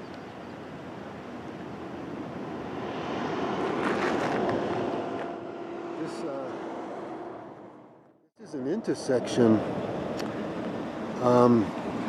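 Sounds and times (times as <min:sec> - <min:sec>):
highway traffic noise: 0:00.0 - 0:12.0
vehicle passing: 0:02.2 - 0:11.2.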